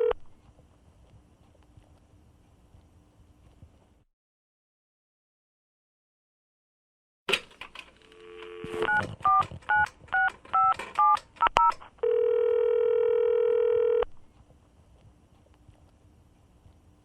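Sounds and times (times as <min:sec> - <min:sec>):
dial tone: 0:08.1 - 0:09.4, 0:12.0 - 0:14.1
telephone ringing tone: 0:08.1 - 0:11.1, 0:12.0 - 0:14.1
keypad tones: 0:08.1 - 0:14.1.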